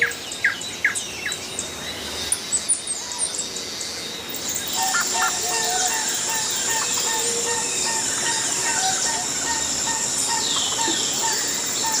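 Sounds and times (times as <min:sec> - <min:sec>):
birds chirping and calling: 0:00.0 - 0:12.0
steady high-pitched hum: 0:04.2 - 0:12.0.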